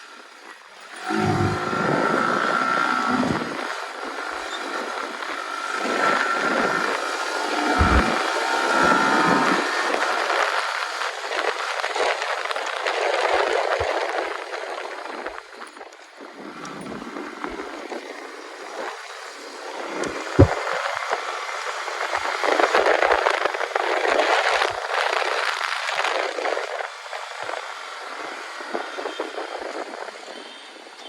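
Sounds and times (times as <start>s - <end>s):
motorcycle road and wind noise: 0.0s - 31.0s
brief high tone: 1.0s - 3.6s.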